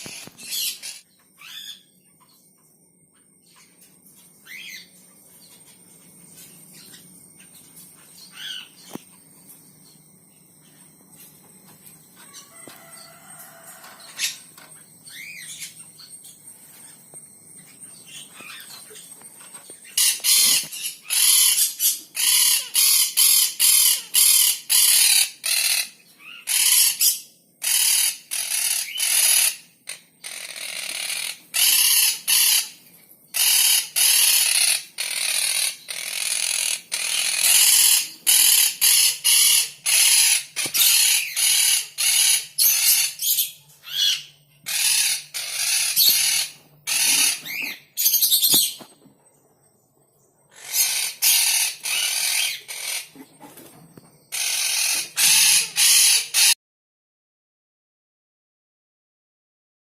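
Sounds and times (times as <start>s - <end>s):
baby bird calling harshly: 20.0s - 29.6s, 30.3s - 32.7s, 33.4s - 48.8s, 50.6s - 53.2s, 54.3s - 56.6s.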